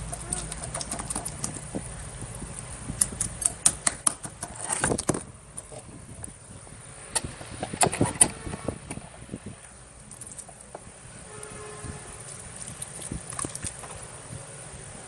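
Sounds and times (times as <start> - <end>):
slime squelch: 0.0 - 3.8, 12.1 - 14.1.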